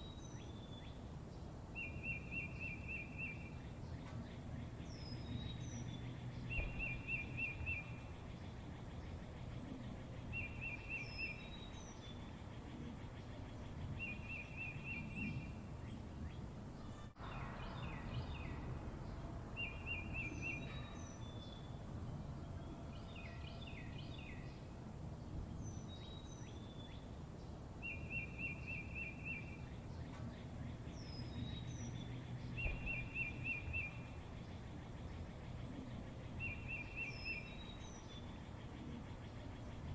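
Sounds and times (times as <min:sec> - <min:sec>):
low outdoor hum: 0:00.0 - 0:39.9
songbird trilling: 0:01.8 - 0:15.6, 0:19.6 - 0:21.7, 0:27.8 - 0:39.9
bird chirps: 0:01.8 - 0:24.7, 0:27.8 - 0:39.9.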